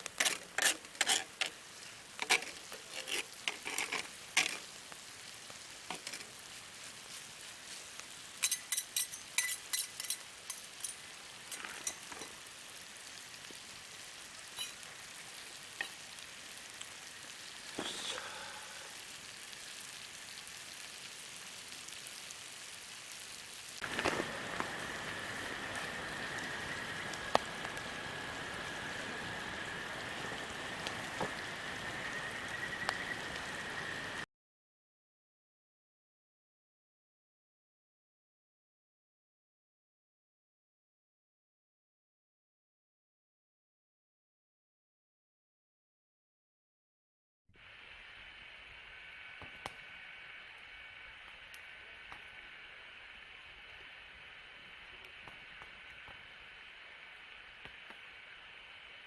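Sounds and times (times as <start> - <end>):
food sizzling in a pan: 0.0 - 34.2, 47.6 - 59.0
utensil clinking on metal: 8.4 - 12.4
high whine: 23.8 - 34.2.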